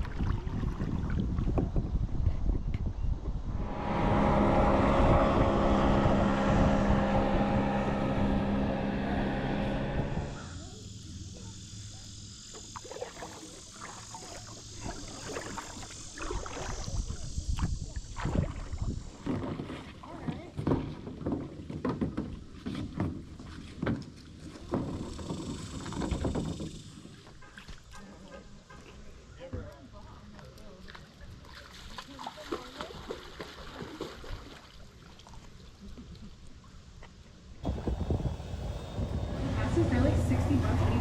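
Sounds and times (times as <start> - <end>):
knocks and splashes: 0.0 - 1.8, 12.5 - 29.0, 30.7 - 36.4
wind rumble on microphone: 0.0 - 10.6, 14.8 - 20.0, 37.6 - 41.0
steady multi-tone drone: 3.4 - 12.6, 37.6 - 41.0.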